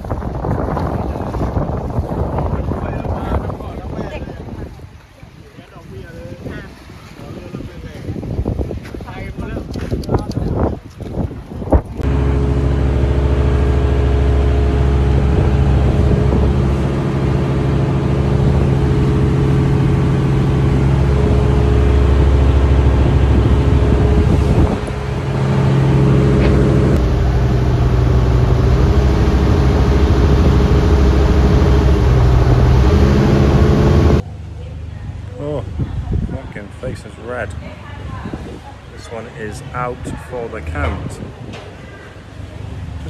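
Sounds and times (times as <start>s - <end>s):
engine low drone: 11.8s - 35.8s.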